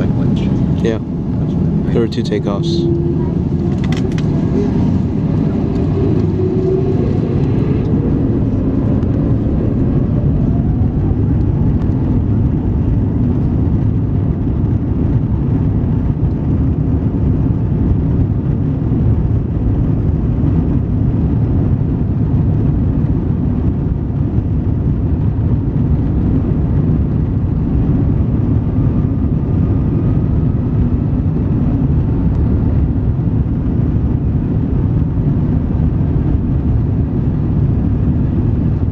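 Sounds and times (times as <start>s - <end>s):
faint rising whine: 0.0s - 14.1s
jet engines rumbling: 0.0s - 38.9s.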